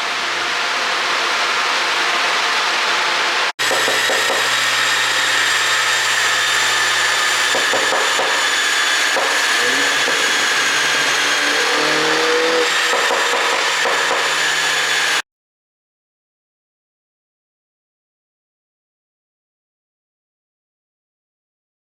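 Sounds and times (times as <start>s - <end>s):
car engine revving: 5.3s - 15.2s.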